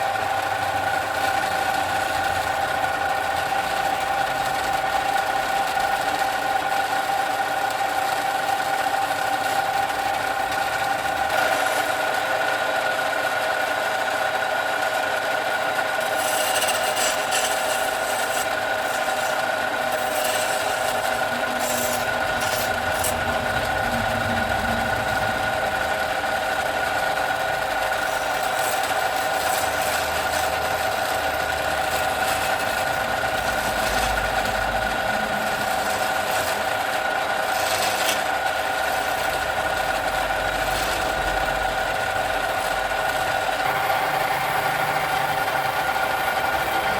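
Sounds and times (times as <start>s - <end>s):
workshop tool motor whining: 0.0s - 46.9s
tool rasping and scraping: 15.6s - 46.9s.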